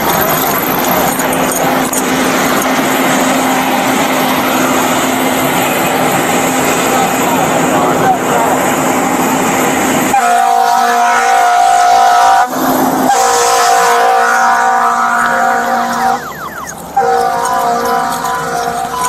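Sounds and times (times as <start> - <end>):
vehicle horn blaring: 10.1 - 19.0.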